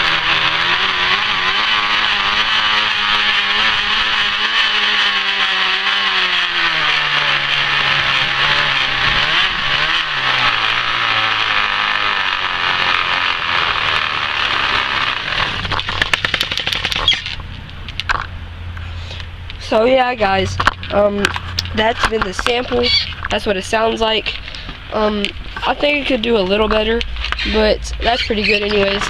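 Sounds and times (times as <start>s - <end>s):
bottles buzzing in bicycle spokes: 0.0s - 17.4s, 20.6s - 23.4s.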